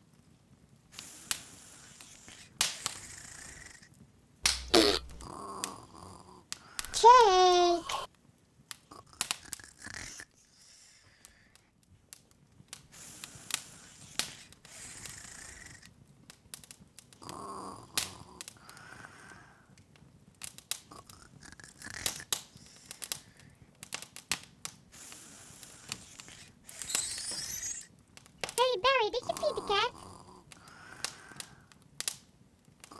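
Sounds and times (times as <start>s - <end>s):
soft fire hiss: 4.4s - 5.3s, 25.0s - 27.9s
wood fire crackling: 4.4s - 5.8s.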